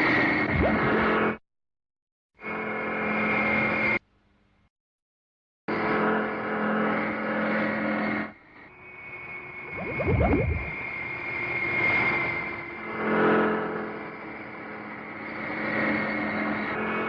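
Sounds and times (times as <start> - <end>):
cartoon mechanical engine drone: 9.7 - 10.9.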